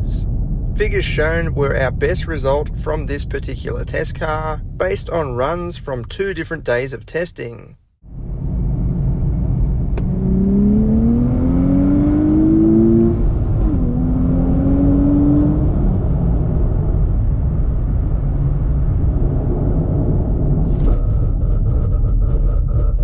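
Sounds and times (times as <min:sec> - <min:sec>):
car engine accelerating hard: 0:08.1 - 0:21.8.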